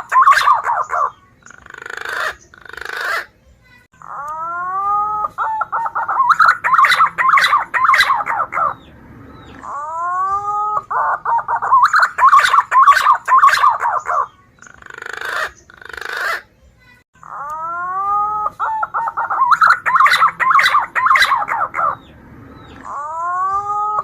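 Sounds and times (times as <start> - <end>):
pigeon whistled song: 0.0 - 3.3, 4.0 - 16.4, 17.3 - 24.0
harsh noisy bird note: 5.9 - 10.1, 18.9 - 23.7.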